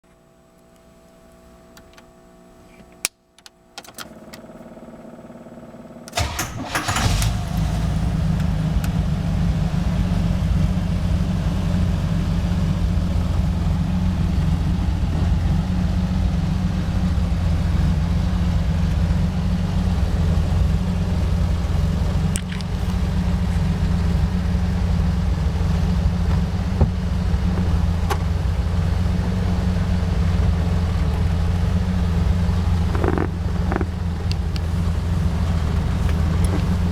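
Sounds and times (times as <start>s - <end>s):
car engine cranking and starting: 3.8s - 36.9s
car engine idling: 4.1s - 36.9s
clicks: 32.9s - 34.7s, 35.5s - 36.9s.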